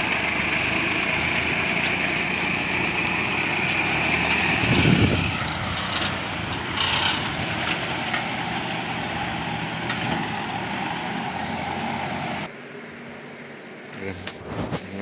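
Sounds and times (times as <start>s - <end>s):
vehicle engine running: 0.0s - 15.0s
low rumble: 14.0s - 15.0s.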